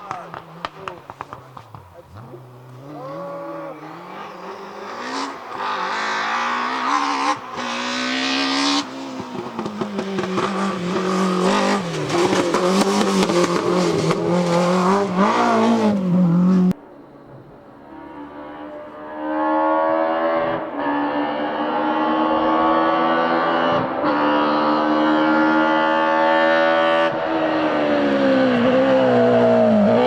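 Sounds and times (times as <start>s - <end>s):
engine crackle: 0.0s - 20.8s
rally car engine at full throttle: 0.0s - 30.0s.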